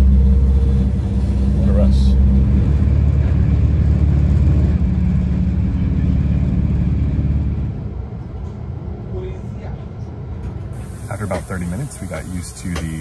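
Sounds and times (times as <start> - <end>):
train rumble from inside carriage: 0.0 - 13.0.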